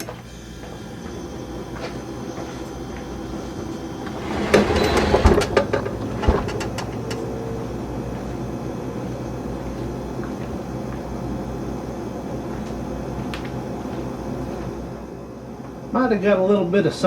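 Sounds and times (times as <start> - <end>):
machine hum: 3.9 - 7.8
loud knocks and clatter: 4.1 - 7.1.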